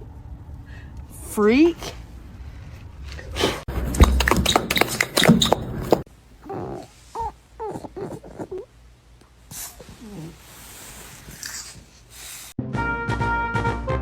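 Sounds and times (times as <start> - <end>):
clattering knocks and thumps: 3.7 - 6.1
dog whining: 4.0 - 8.7, 9.5 - 11.9.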